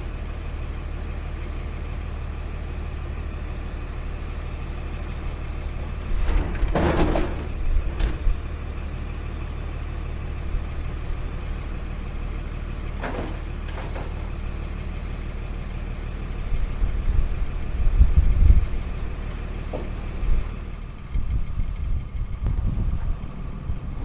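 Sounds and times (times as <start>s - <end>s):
garbage truck engine running: 0.0s - 24.0s
low rumble: 5.4s - 12.5s, 16.5s - 24.0s.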